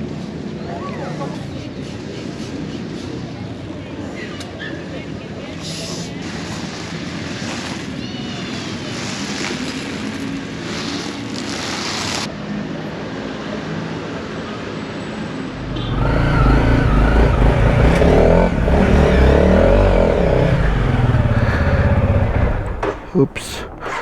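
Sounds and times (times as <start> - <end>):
motorcycle engine revving: 15.6 - 24.0.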